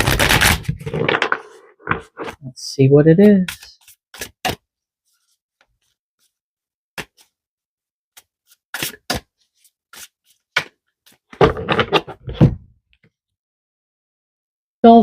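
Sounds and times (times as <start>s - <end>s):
cards being shuffled: 3.4s - 4.6s, 8.2s - 12.1s.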